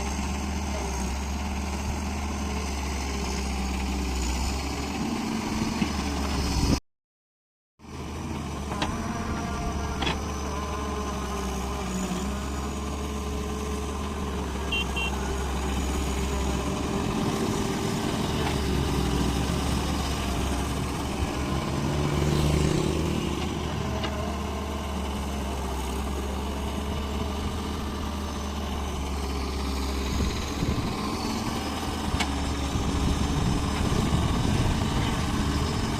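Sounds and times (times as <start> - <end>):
diesel engine humming: 7.9 - 35.9.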